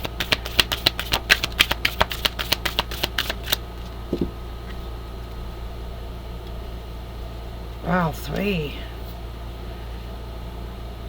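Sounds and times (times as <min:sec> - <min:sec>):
cards being shuffled: 0:00.0 - 0:04.8.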